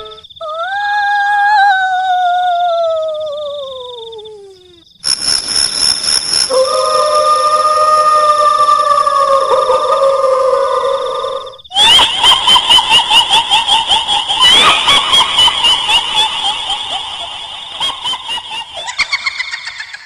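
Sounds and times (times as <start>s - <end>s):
shrill cackling female laugh: 11.7s - 20.0s.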